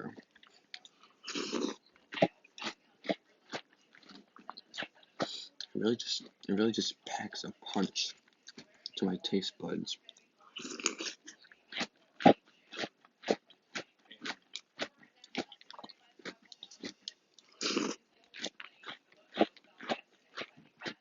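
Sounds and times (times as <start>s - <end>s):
chewing crunchy cereal: 0.0s - 21.0s.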